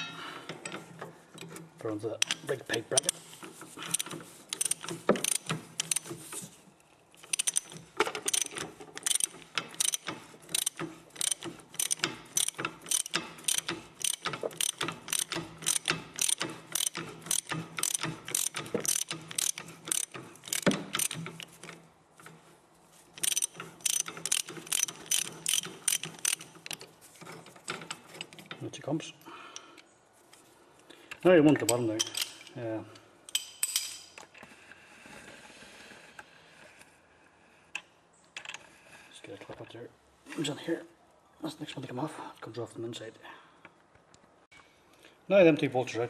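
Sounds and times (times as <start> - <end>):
ratchet wrench clicking: 3.8 - 6.1, 7.2 - 21.5, 23.2 - 26.8.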